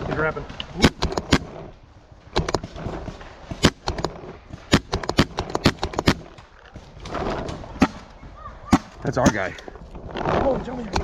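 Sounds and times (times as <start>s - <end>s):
paintball markers firing: 0.7s - 1.6s, 2.3s - 8.1s, 8.7s - 9.8s.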